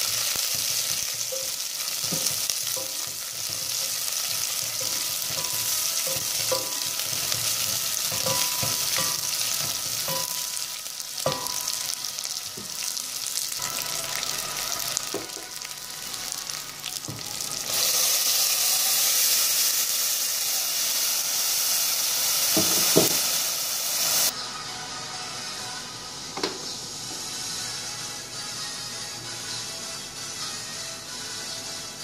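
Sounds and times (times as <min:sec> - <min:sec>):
onions sizzling in a pot: 0:00.0 - 0:24.4
sauce pouring onto hot onions: 0:16.9 - 0:24.3.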